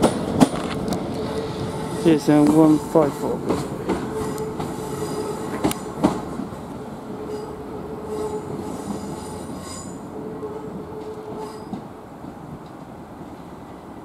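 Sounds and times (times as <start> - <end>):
train wheels clunking over rail joints: 0.0 - 7.6.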